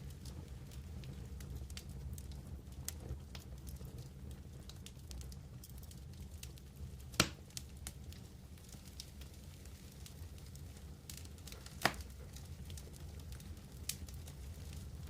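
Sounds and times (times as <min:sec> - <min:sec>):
campfire crackling: 0:00.0 - 0:15.0
loud pop of fire: 0:07.1 - 0:07.6, 0:11.5 - 0:12.2.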